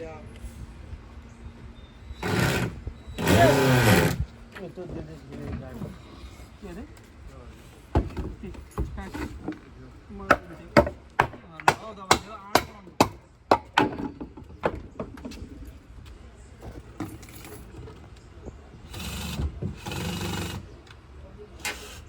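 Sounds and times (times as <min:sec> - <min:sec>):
hammer striking wood: 0:10.3 - 0:14.8.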